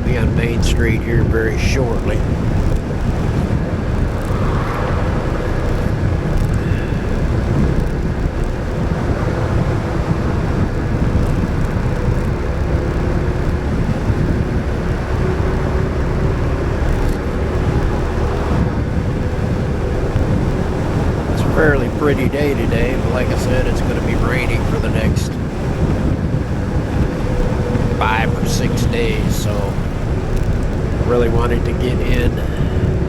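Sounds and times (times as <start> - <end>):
road noise: 0.0 - 33.0
rushing wind: 0.0 - 33.0
scooter engine drone: 0.0 - 33.0.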